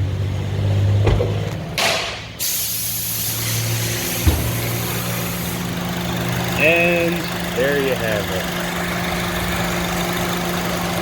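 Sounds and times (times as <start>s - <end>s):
car engine idling: 1.0s - 11.0s
short rush of hiss: 2.4s - 5.6s.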